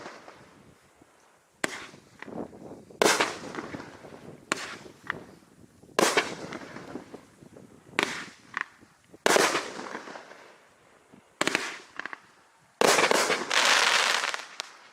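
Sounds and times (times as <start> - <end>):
fireworks bursts with crackle: 0.0 - 0.9, 1.6 - 14.9
small firework pops: 1.6 - 5.4, 6.0 - 7.3, 7.9 - 10.5, 11.4 - 14.9.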